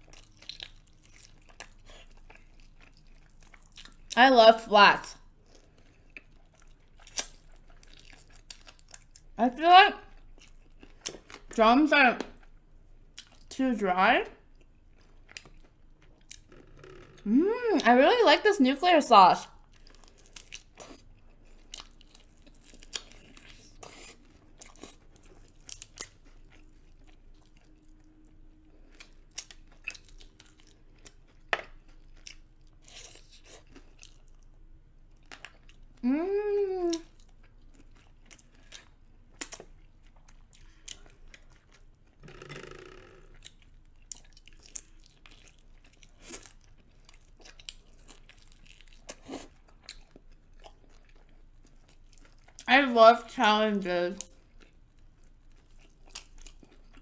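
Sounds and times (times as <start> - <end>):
wet chewing and crunching: 0.0 - 4.2, 5.1 - 9.4, 10.0 - 11.6, 12.3 - 13.6, 14.4 - 16.6, 19.4 - 36.0, 36.7 - 42.2, 43.3 - 52.7, 54.2 - 57.0
person humming mm: 17.2 - 17.8, 36.0 - 37.0.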